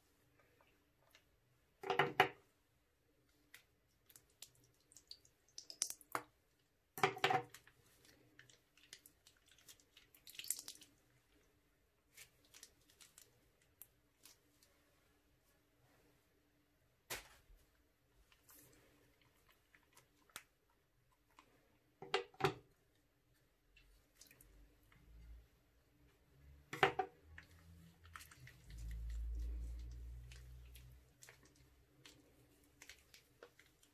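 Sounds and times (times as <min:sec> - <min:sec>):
wet slime squishes: 0:03.0 - 0:15.5, 0:17.0 - 0:22.0, 0:22.6 - 0:33.9
drips: 0:04.0 - 0:06.3, 0:07.7 - 0:11.1, 0:27.2 - 0:33.9.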